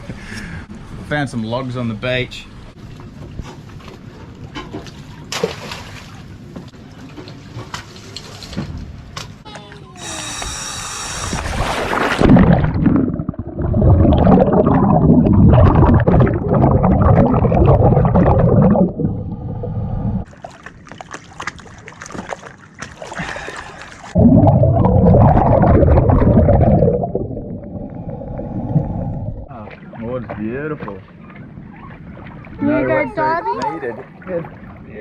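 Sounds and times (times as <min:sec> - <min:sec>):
water splashing and gurgling: 0:10.2 - 0:32.9.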